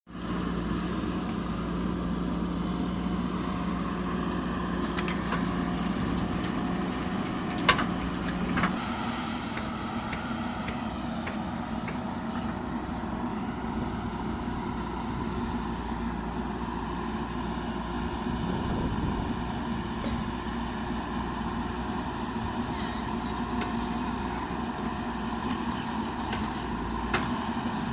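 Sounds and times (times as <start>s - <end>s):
heavy machinery engine running: 0.1s - 27.9s
steady engine hum: 0.1s - 27.9s.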